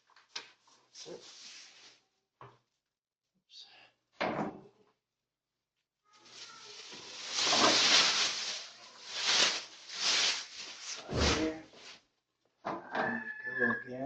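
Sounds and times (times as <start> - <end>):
cat litter pouring: 6.2 - 12.0.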